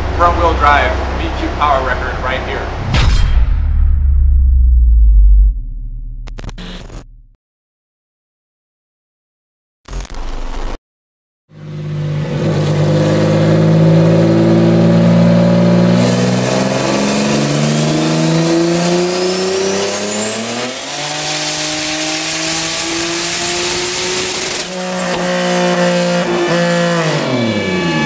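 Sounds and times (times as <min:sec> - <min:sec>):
car engine revving on dyno: 0:11.6 - 0:28.0.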